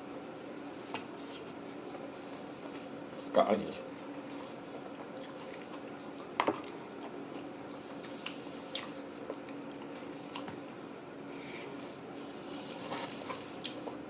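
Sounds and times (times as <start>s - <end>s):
person chewing food: 3.9s - 10.6s, 11.5s - 14.0s.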